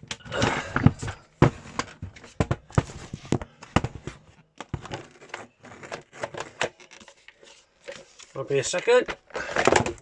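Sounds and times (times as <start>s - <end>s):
plastic clicks and knocks: 8.8s - 10.0s.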